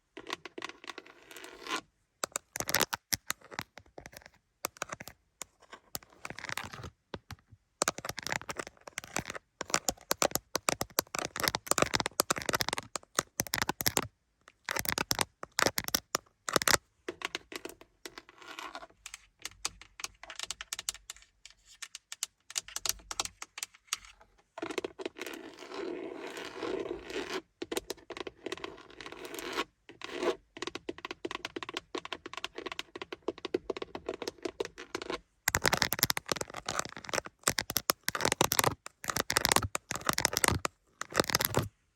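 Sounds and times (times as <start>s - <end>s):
scratching and tapping on car interior: 2.2s - 14.0s, 30.6s - 41.7s.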